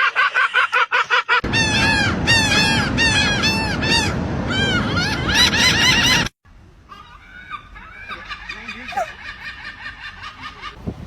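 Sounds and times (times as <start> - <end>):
steady rushing noise: 1.4 - 6.3
gulls calling: 1.4 - 10.8.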